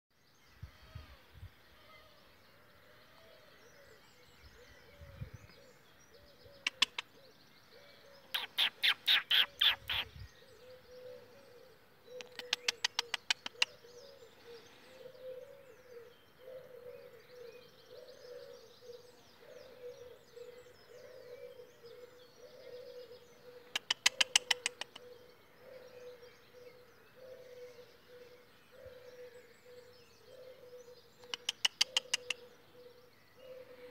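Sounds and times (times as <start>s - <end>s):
faint birdsong: 0.1s - 33.9s
harsh rapid bird chattering: 6.6s - 7.1s, 8.3s - 10.2s, 12.1s - 13.9s, 23.6s - 25.1s, 31.2s - 32.5s.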